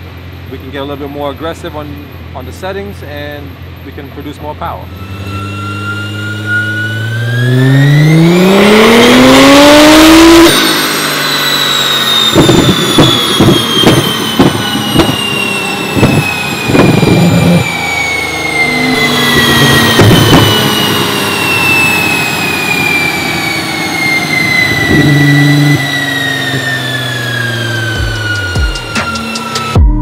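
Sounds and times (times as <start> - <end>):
car engine at full throttle: 0.0 - 30.0
thin whine: 0.0 - 30.0
exhaust pops: 12.2 - 17.7, 19.2 - 20.8.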